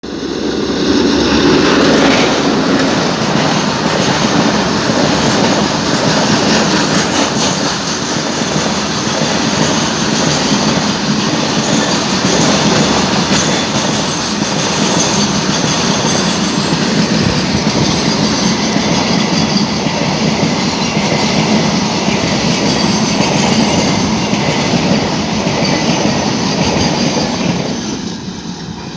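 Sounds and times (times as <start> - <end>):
train wheels on track: 0.0 - 28.9.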